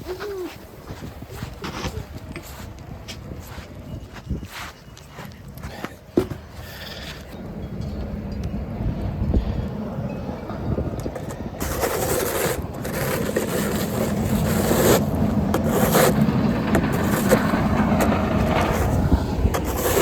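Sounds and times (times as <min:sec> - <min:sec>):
steady low hum: 0:07.3 - 0:20.0
snow being scraped: 0:11.6 - 0:20.0.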